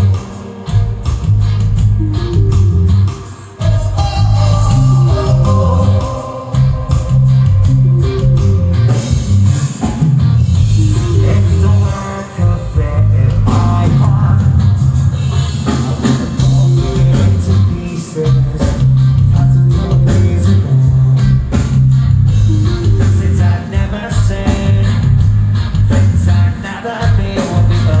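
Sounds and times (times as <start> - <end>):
bass guitar: 0.0 - 28.0
distorted electric guitars: 0.0 - 28.0
drum kit: 0.0 - 28.0
person singing: 3.1 - 9.4, 10.8 - 14.8, 15.7 - 21.5, 22.5 - 25.1, 26.2 - 28.0.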